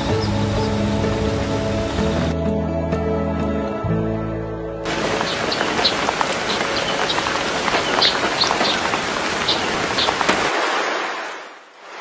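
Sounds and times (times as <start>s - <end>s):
steady rain falling: 0.0s - 2.4s, 4.9s - 12.0s.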